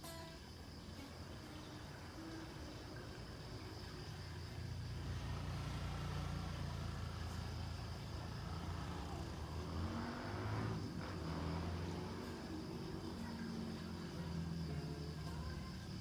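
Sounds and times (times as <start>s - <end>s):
vehicle passing: 4.7s - 16.0s.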